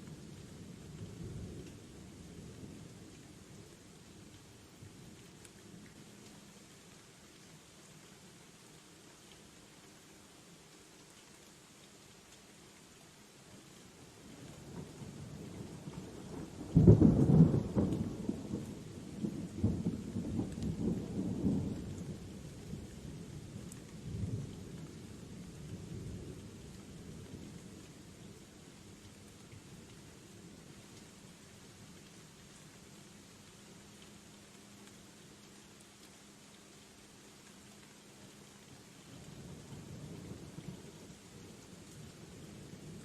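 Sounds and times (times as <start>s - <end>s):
light rain on leaves: 0.0s - 43.0s
thunderclap and rumbling thunder: 14.7s - 22.2s.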